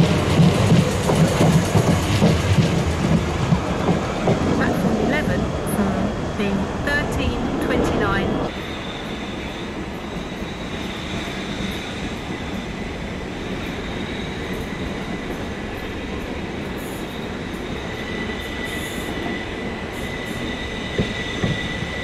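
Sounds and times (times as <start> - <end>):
train wheels rumbling on rail: 0.0 - 22.0
high wheel squeal: 8.5 - 14.8, 17.0 - 22.0.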